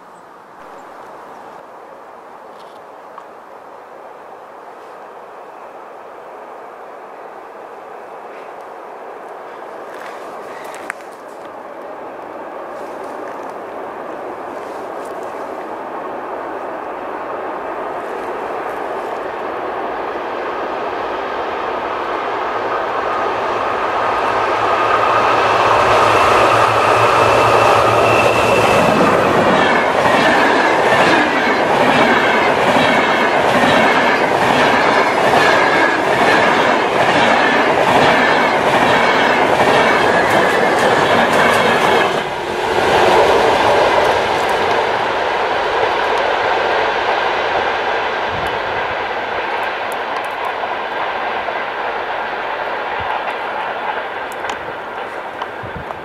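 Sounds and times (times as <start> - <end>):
train rushing past: 4.1 - 56.0
locomotive whine: 6.5 - 56.0
wheels clacking over rail joints: 25.9 - 45.0.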